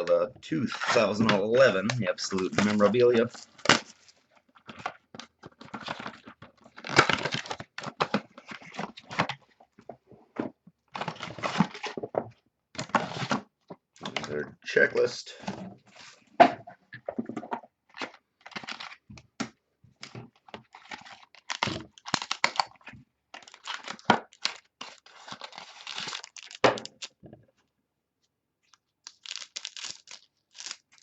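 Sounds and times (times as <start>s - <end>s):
packaging crinkling and tearing: 0.0s - 9.4s, 10.9s - 12.1s, 17.9s - 19.0s, 20.6s - 27.2s, 28.7s - 31.0s.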